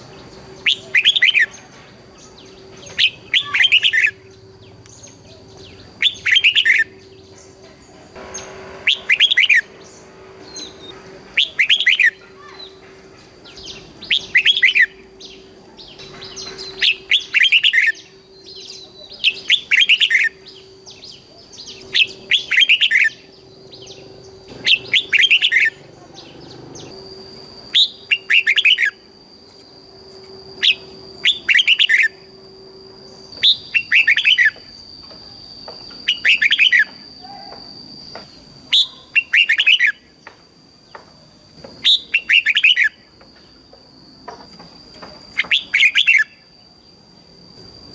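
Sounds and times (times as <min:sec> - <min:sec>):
bird singing a short phrase: 0:00.1 - 0:07.3.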